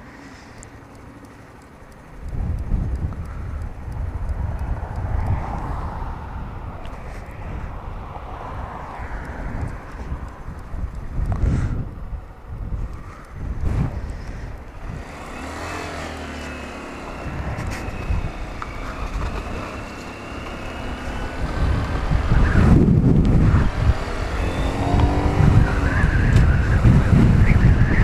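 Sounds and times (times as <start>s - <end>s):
wind rush on microphone: 2.2s - 28.0s
motorcycle engine running: 12.6s - 28.0s.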